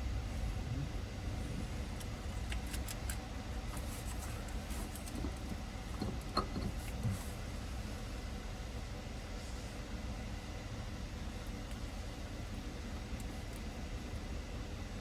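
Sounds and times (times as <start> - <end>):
low shop hum: 0.0 - 15.0.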